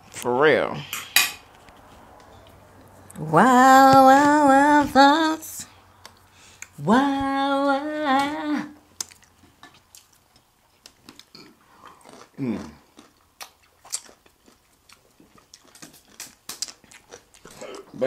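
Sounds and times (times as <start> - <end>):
chewing and lip smacks: 8.9 - 18.0.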